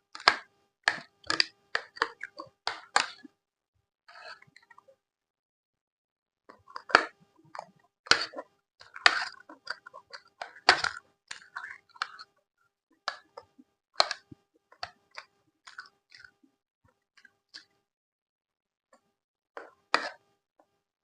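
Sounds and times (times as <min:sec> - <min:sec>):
close-miked chewing: 0:06.7 - 0:12.2, 0:14.8 - 0:16.4.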